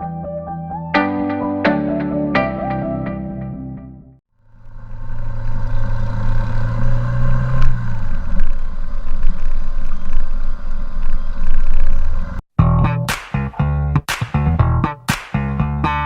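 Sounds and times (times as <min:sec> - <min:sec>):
road and wind noise: 0:04.4 - 0:12.4.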